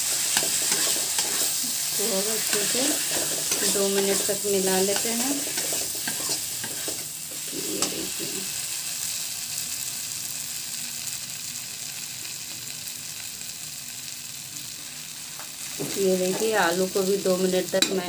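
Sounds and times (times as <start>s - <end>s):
spatula scraping a pan: 0.0s - 8.3s
food sizzling in hot oil: 0.0s - 18.0s.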